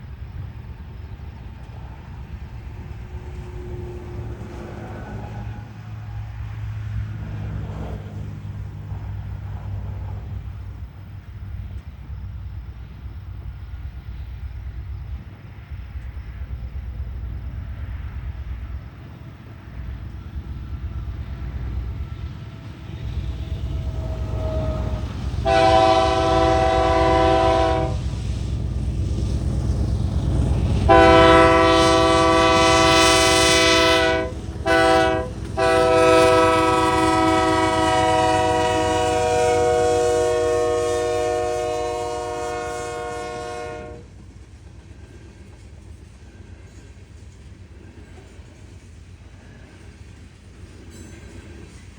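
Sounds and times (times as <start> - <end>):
freight train rumble: 0.0 - 51.9
locomotive horn blasts: 23.5 - 28.1, 30.9 - 44.1.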